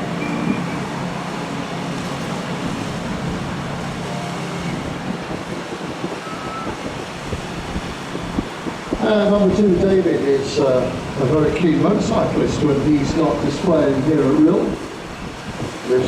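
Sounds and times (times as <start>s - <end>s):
noisy hiss: 0.0s - 16.0s
radial aircraft engines droning: 0.0s - 16.0s.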